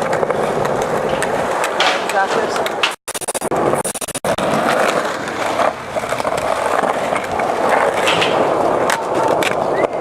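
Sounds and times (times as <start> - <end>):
skateboard wheels rolling: 0.0 - 10.0.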